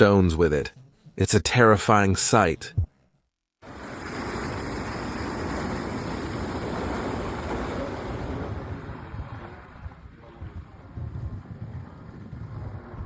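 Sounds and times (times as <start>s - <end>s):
rushing floodwater: 3.6s - 9.8s.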